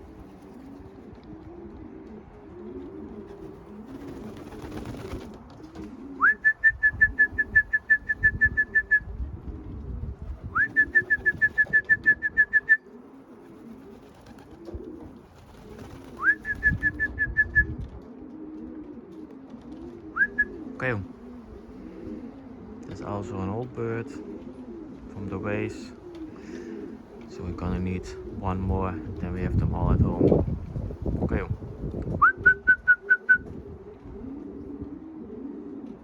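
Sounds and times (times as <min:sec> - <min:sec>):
wings rustling: 0:00.0 - 0:01.7, 0:02.6 - 0:09.0, 0:10.1 - 0:17.3
pigeons cooing: 0:00.0 - 0:36.0.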